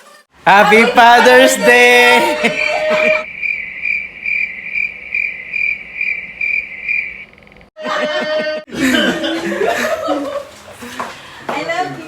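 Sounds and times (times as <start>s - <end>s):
cricket chirping: 2.4s - 7.7s.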